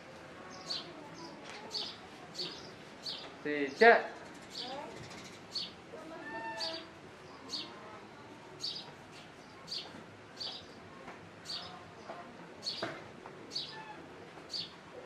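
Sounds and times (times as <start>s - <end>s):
bird chirping: 0.5s - 7.8s.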